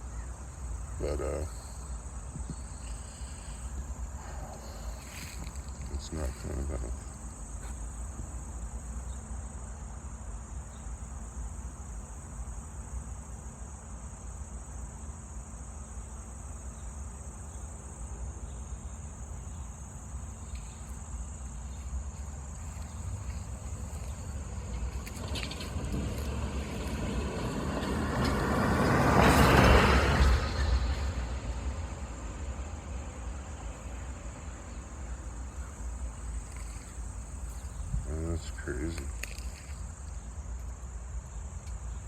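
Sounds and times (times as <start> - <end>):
low outdoor rumble: 0.0 - 13.5, 16.0 - 42.0
high-pitched insect trill: 0.0 - 42.0
vehicle passing: 0.7 - 7.7, 21.0 - 40.1.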